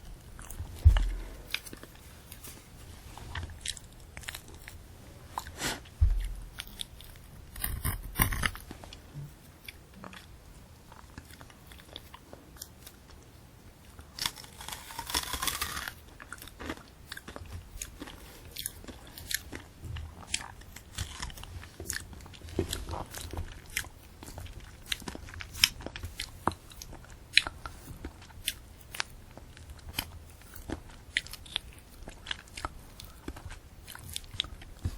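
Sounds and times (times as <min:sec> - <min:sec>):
crunchy biting and chewing: 0:00.0 - 0:02.5, 0:03.1 - 0:09.0, 0:13.8 - 0:34.9
dull low thump: 0:00.6 - 0:01.6, 0:06.0 - 0:06.6.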